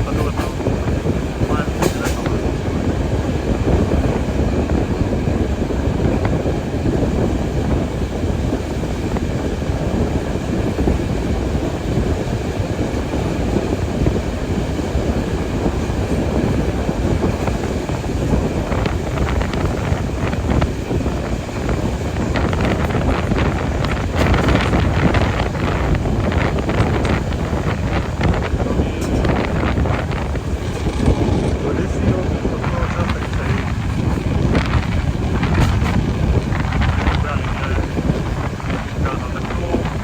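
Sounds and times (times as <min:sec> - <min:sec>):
train rumbling on track: 0:00.0 - 0:40.0
wind on microphone: 0:00.0 - 0:40.0.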